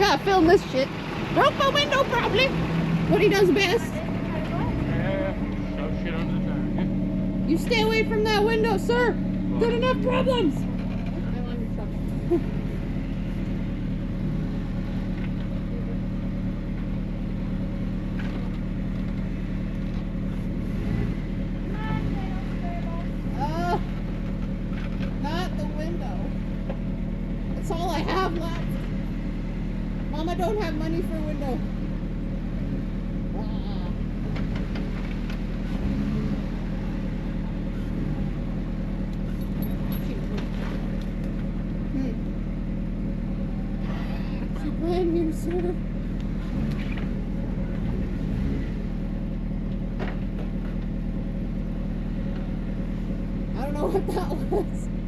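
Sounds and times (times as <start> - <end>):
car engine droning: 0.0 - 55.0.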